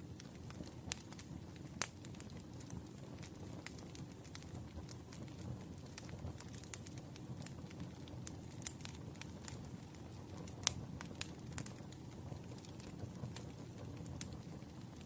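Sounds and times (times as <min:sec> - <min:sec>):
fire flames rumbling: 0:00.0 - 0:15.0
firewood crackling and popping: 0:00.0 - 0:15.0.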